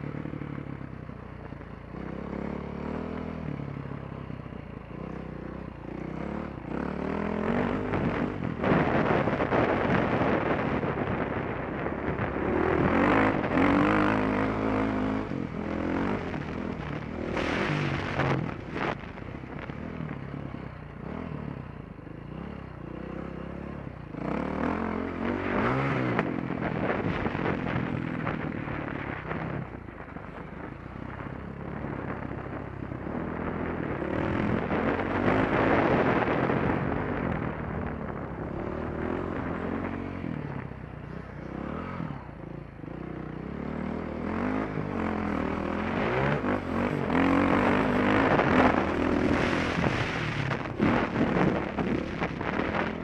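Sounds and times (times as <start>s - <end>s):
wind rushing over microphone: 0.0s - 53.0s
dirt bike engine revving: 12.2s - 18.9s, 43.6s - 53.0s.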